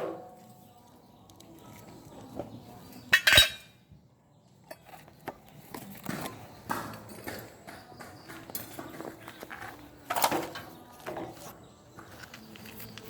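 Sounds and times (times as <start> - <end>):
metal parts clinking and knocking: 3.1 - 3.7.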